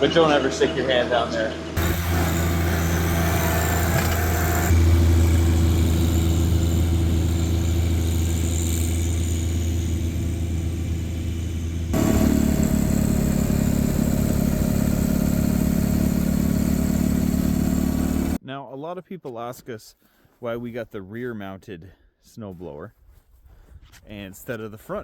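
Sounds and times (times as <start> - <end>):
tractor engine running: 1.8 - 18.4.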